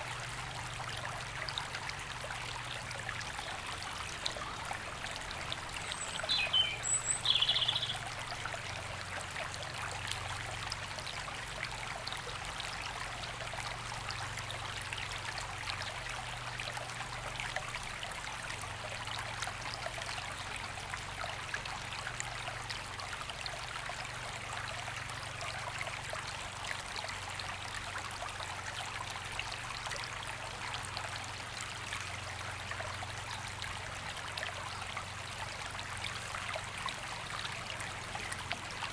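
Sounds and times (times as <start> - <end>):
river flowing over stones: 0.0 - 38.9
bird chirping: 5.8 - 8.0.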